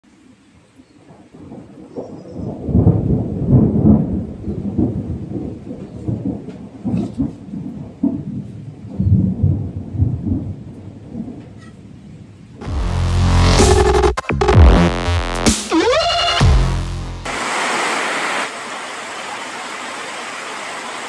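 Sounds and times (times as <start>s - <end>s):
faint rain: 0.0s - 12.6s, 17.3s - 21.0s
thunder rumbling: 1.6s - 11.4s.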